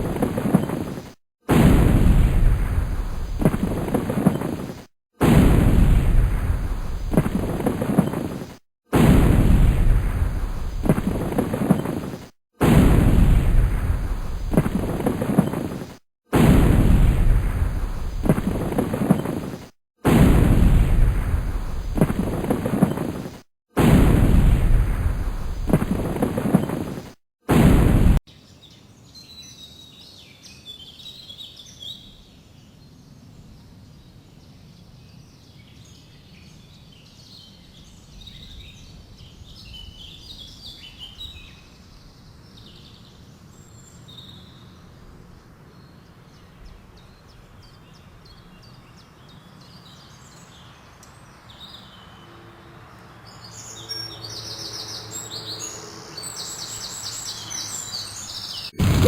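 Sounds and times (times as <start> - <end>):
faint outdoor background: 0.0 - 59.0
loud blast-like rumble: 58.8 - 59.0.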